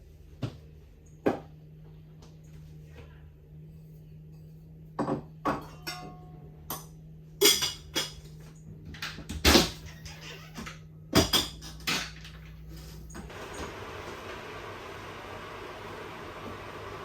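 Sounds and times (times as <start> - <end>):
dishes and utensils clinking: 5.0 - 8.4.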